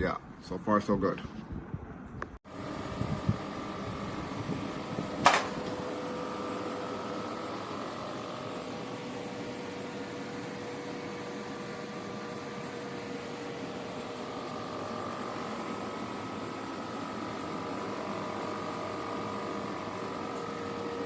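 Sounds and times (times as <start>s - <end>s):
air conditioner hum and whine: 2.5s - 21.0s.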